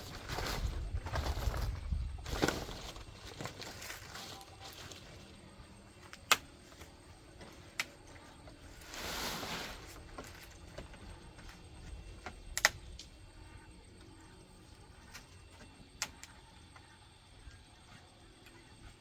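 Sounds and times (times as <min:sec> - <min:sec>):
rustling swish: 0:08.8 - 0:10.0.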